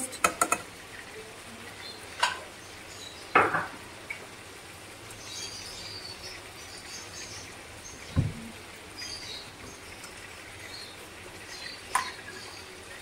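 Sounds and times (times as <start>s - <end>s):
utensil knocks: 8.2s - 8.5s.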